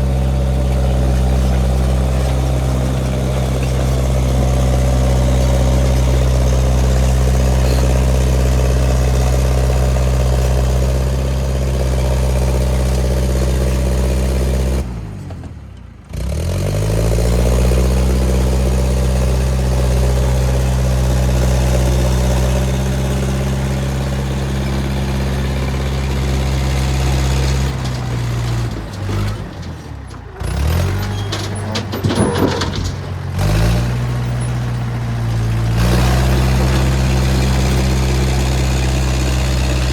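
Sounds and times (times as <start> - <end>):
loader engine running: 0.0 - 39.9
metal clanking and rattling: 0.1 - 10.6, 26.3 - 39.9.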